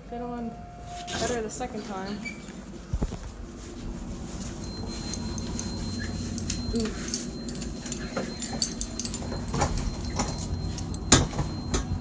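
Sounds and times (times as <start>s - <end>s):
steady low hum: 0.0s - 12.0s
luggage knocks and clicks: 8.1s - 12.0s.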